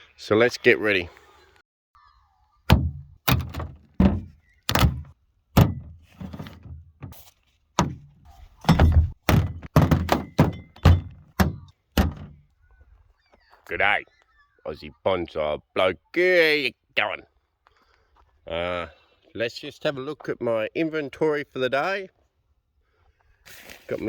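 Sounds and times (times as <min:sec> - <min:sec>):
heavy thunks and knocks: 0:02.7 - 0:07.2, 0:07.8 - 0:12.4.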